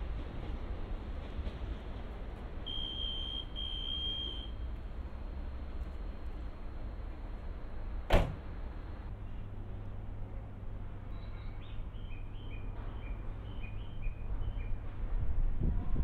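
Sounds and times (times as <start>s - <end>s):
train humming approaching: 0.0s - 16.0s.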